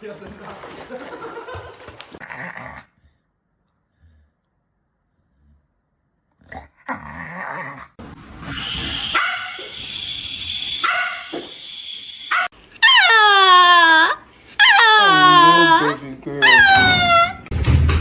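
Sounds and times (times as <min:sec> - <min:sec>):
dog whining: 0:08.5 - 0:17.5.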